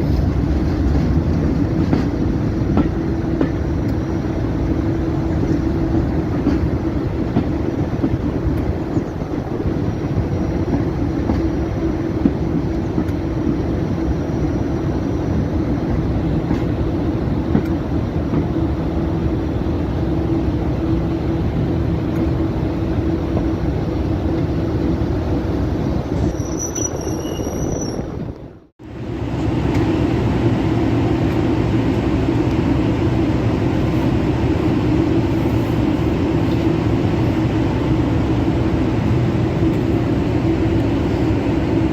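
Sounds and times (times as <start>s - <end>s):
diesel train rumbling: 0.0s - 41.9s
thin high squeal: 26.2s - 28.1s.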